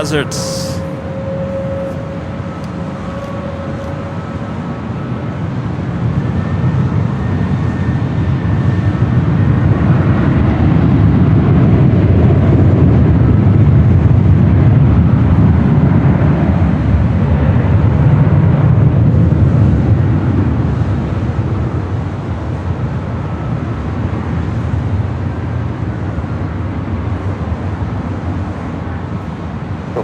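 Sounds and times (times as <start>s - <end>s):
jet engines roaring at takeoff: 0.0s - 30.0s.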